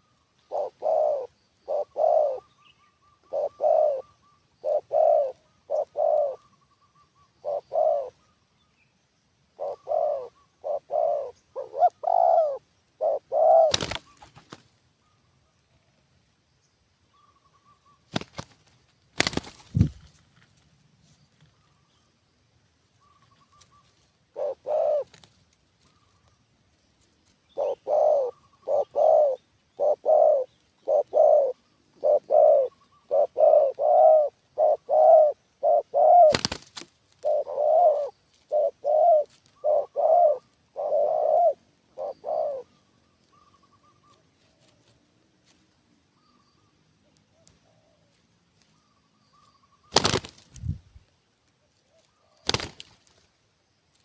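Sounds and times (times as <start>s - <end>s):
dove cooing: 0.0s - 6.5s, 7.4s - 8.2s, 9.6s - 14.4s, 24.3s - 25.3s, 27.5s - 42.8s.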